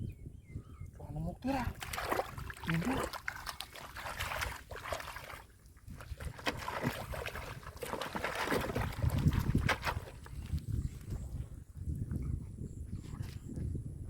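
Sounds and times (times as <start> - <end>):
muddy water sloshing and splashing: 1.5 - 11.3.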